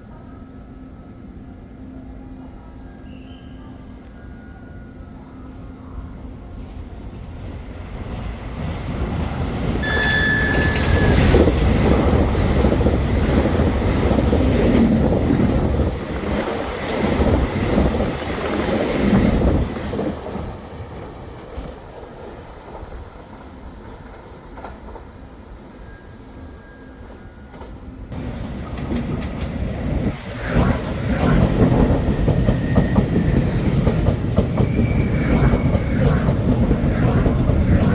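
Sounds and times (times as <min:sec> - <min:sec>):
train wheels rumbling on rails: 0:06.5 - 0:25.3, 0:27.0 - 0:37.9
brief high tone: 0:09.8 - 0:11.3.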